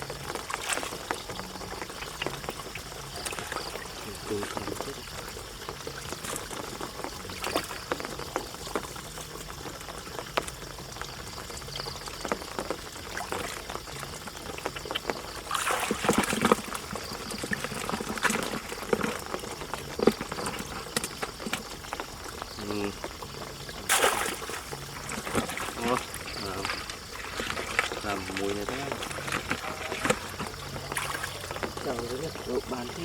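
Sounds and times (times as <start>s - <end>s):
water splashing and trickling: 0.0s - 33.0s.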